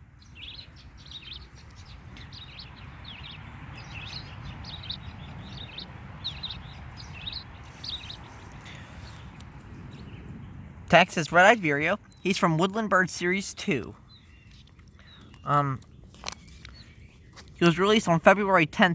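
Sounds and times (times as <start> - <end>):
recorded bird song from toy: 0.2 - 8.2.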